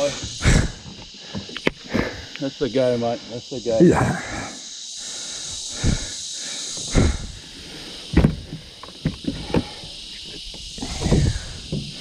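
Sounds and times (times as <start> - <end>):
steady high hiss: 0.0 - 12.0
thumps and knocks on boat: 8.1 - 9.8, 11.0 - 12.0.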